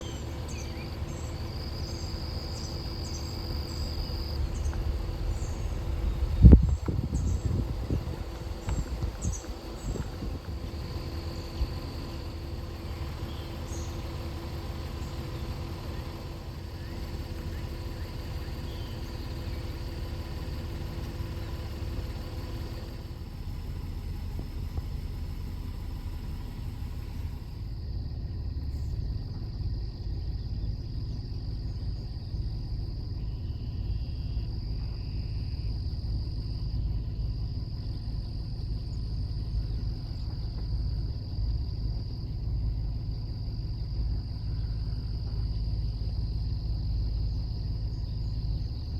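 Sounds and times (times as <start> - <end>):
high insect drone: 0.0 - 23.6, 25.1 - 48.9
engine idling: 0.0 - 48.9
faint steady hum: 0.0 - 48.9
low rumble: 0.0 - 48.9.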